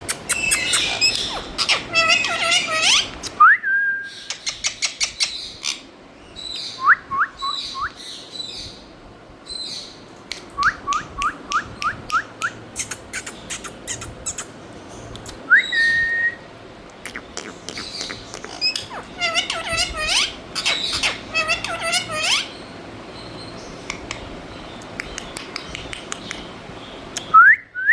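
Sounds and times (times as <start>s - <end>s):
parrot calling and whistling: 0.0s - 3.4s, 10.6s - 14.6s, 15.2s - 22.6s.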